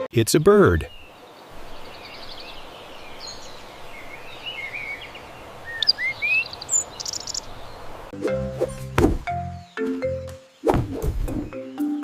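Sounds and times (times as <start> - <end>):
steady outdoor hiss: 0.0 - 12.0
songbird chirping and whistling: 0.8 - 12.0
children's music: 11.5 - 12.0.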